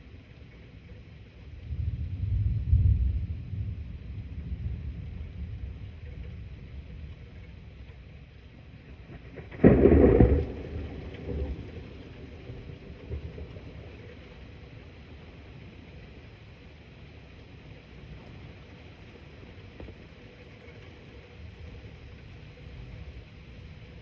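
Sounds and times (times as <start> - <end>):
thunder rumble: 0.0 - 24.0
sharp thunder clap: 9.4 - 11.9.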